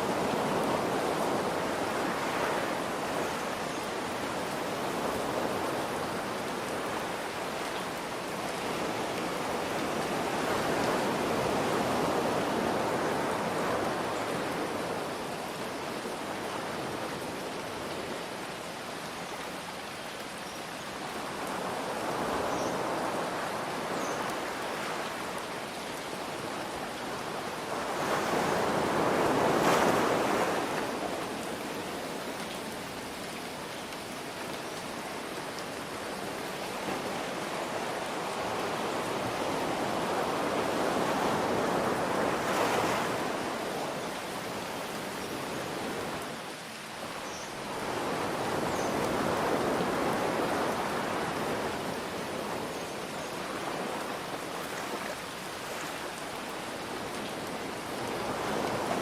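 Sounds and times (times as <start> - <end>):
gentle rain hiss: 0.0 - 59.0
ocean waves washing in: 21.2 - 33.2, 34.8 - 59.0.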